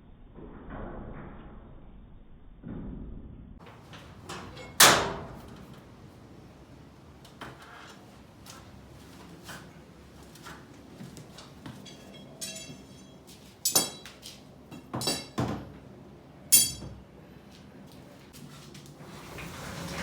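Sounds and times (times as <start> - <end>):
metal objects clanking: 11.7 - 15.6, 16.5 - 16.9.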